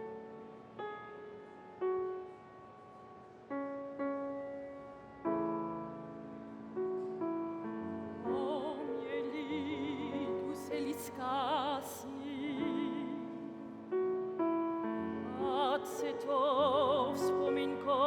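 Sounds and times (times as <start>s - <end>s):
piano chords: 0.0s - 18.0s
operatic singing with vibrato: 8.2s - 13.7s, 15.3s - 18.0s.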